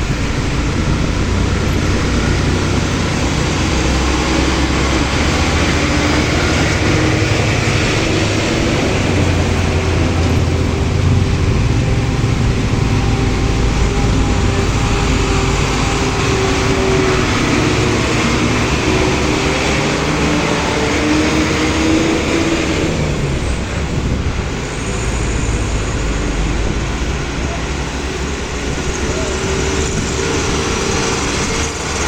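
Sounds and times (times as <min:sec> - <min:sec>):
vehicles passing close: 0:00.0 - 0:32.0.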